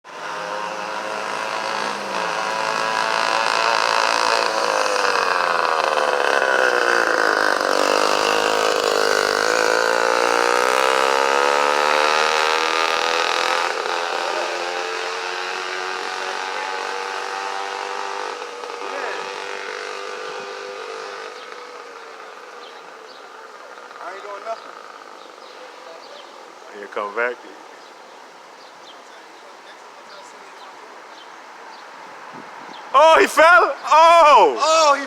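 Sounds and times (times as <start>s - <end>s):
small engine running high-pitched: 0.1s - 22.3s.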